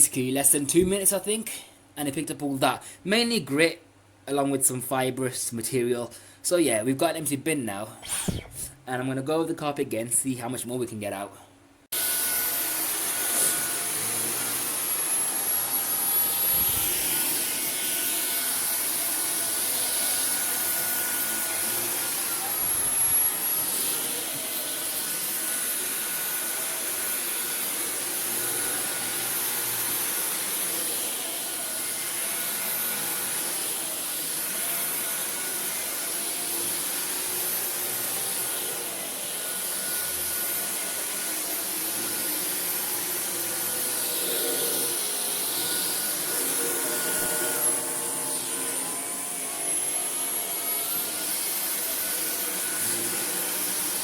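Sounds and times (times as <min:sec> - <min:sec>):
vacuum cleaner running on carpet: 0:11.9 - 0:54.0.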